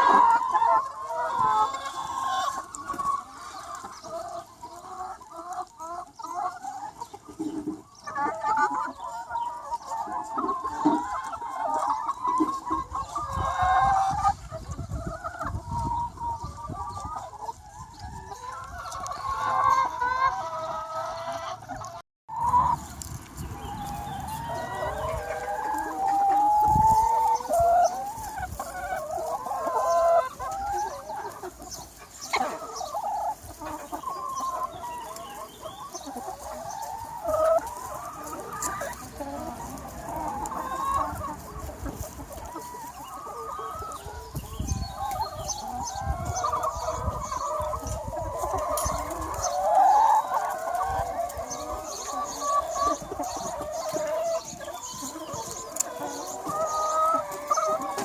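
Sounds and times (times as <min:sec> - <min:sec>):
chicken flock clucking: 0:00.0 - 0:58.0.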